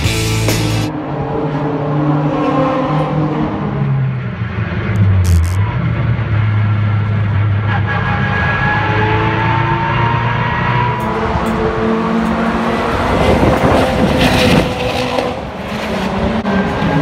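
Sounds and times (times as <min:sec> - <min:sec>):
music: 0:00.0 - 0:00.9.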